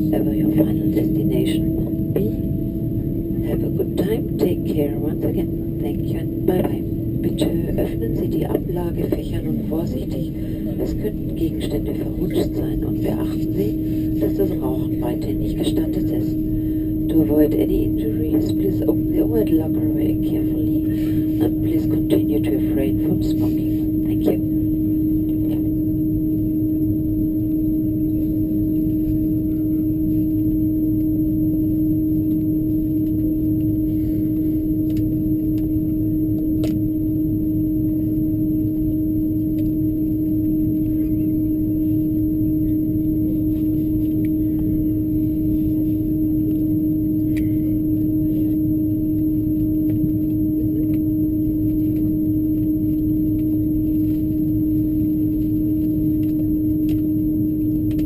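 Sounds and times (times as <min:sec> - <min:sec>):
aircraft cabin rumble: 0:00.0 - 0:58.0
droning hum: 0:00.0 - 0:58.0.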